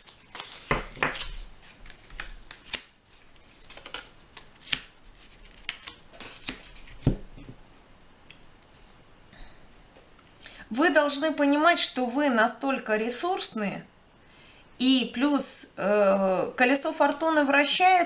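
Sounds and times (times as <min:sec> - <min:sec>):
cards snapping and slapping: 0:00.0 - 0:07.5
cards rustling: 0:00.0 - 0:07.6.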